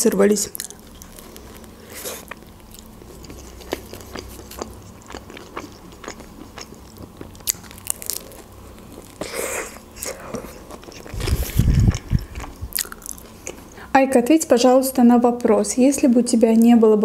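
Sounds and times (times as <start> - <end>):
person chewing food: 0.5 - 13.8.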